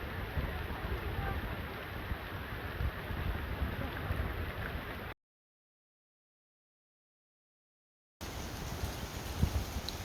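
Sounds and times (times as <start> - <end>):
wind buffeting the microphone: 0.0 - 5.1, 8.2 - 10.0.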